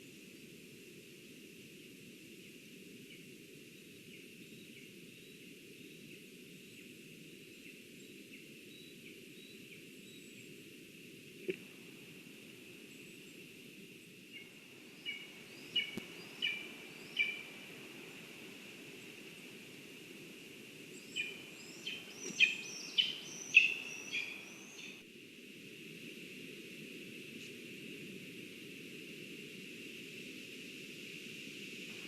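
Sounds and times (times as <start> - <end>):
faint bird chirps: 3.0 - 10.6, 14.0 - 17.8, 20.8 - 25.0
steady hiss: 9.9 - 32.0
loud sharp bird calls: 15.0 - 17.6, 21.1 - 25.0.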